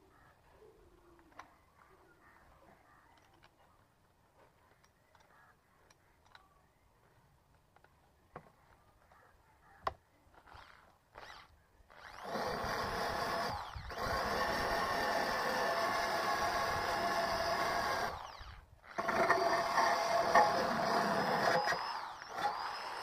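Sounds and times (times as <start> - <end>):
power drill spinning: 10.3 - 23.0.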